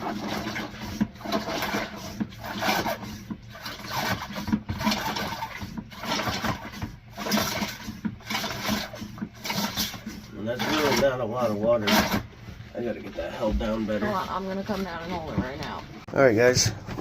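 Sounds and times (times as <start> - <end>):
hand pump strokes: 0.0 - 12.4.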